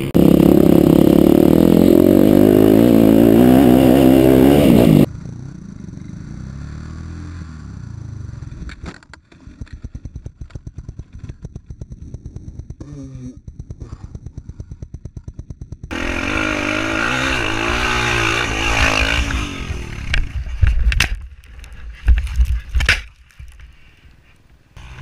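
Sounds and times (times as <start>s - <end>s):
dirt bike engine running: 0.0s - 8.8s, 9.4s - 21.2s
quieter engine running: 0.0s - 8.8s.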